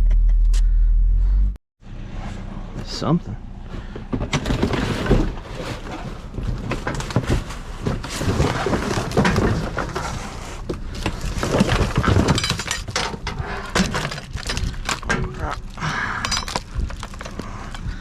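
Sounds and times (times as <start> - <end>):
trash rummaged in a dumpster: 3.6 - 18.0.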